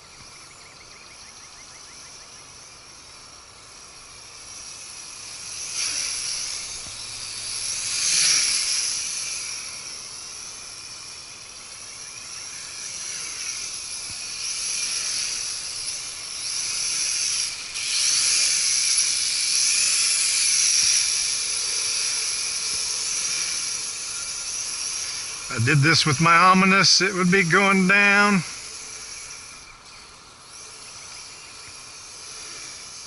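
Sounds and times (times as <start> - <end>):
toy quadcopter whining: 0.2 - 33.0.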